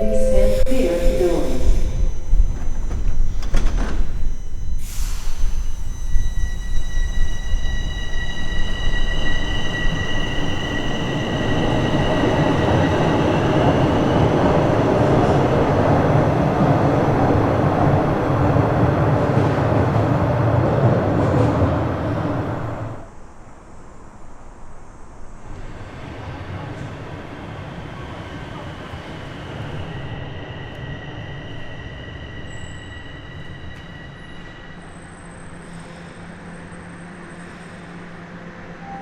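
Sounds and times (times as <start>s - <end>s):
train wheels on rails: 1.2s - 23.0s.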